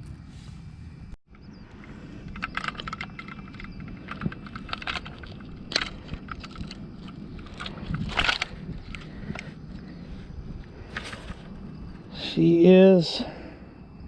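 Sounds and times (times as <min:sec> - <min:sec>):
wind rumble on microphone: 0:00.0 - 0:14.0
gear clicking and rattling: 0:01.3 - 0:11.6.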